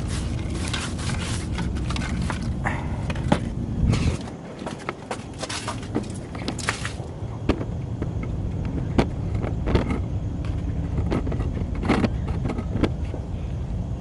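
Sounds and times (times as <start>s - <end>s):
brush scrubbing wet wheel: 0.0s - 3.3s, 5.2s - 7.1s
steady low rumble: 0.0s - 14.0s.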